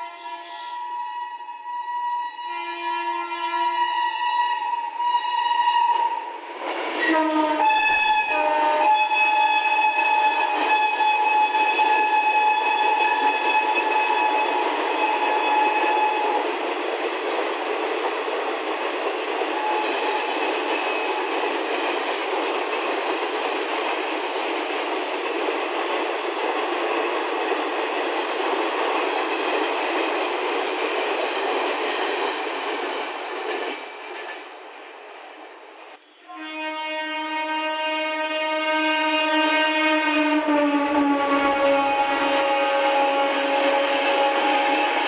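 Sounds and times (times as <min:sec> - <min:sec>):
deep train horn: 0:00.0 - 0:06.3, 0:07.0 - 0:16.4, 0:19.5 - 0:21.1, 0:36.2 - 0:45.0
train horn: 0:00.0 - 0:06.4, 0:07.0 - 0:16.5, 0:19.5 - 0:21.2, 0:36.2 - 0:45.0
train wheels clattering on rail: 0:06.0 - 0:45.0.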